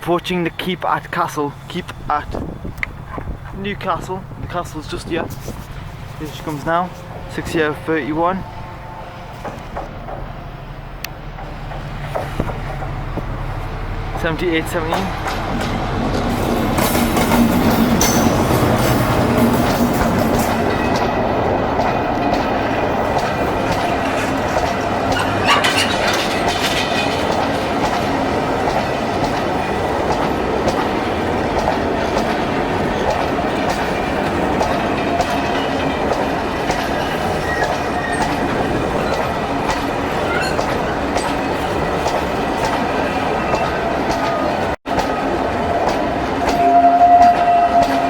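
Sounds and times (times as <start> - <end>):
train wagons rumbling past: 0.1 - 48.0
wheels clicking over rail joints: 11.0 - 48.0.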